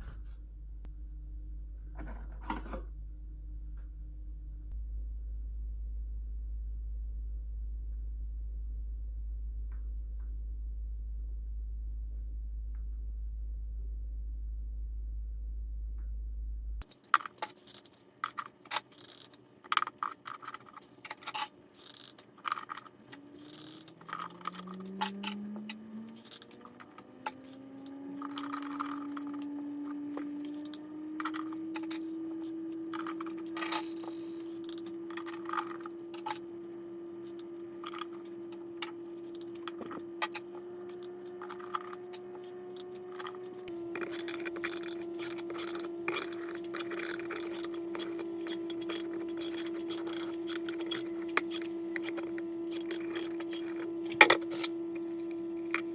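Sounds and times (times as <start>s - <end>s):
steady rising hum: 23.0s - 55.9s.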